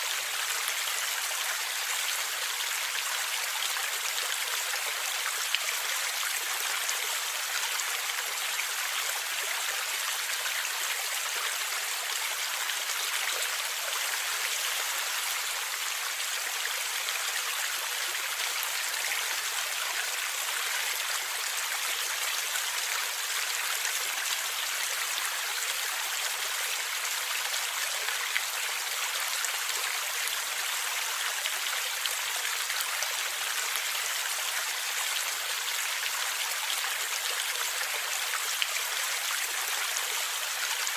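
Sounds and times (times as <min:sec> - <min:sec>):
stream flowing and gurgling: 0:00.0 - 0:40.9.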